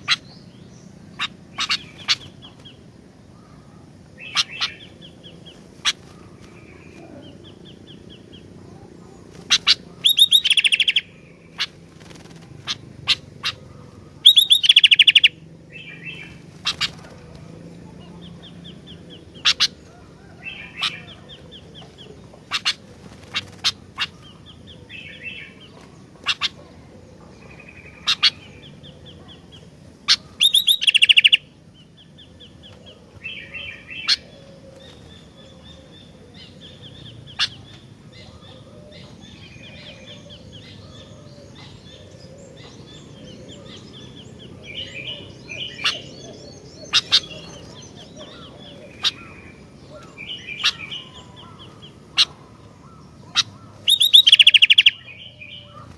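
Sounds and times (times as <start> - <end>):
bird chirping and clicking: 9.3 - 13.6, 14.3 - 15.3, 30.1 - 31.4, 53.4 - 55.0.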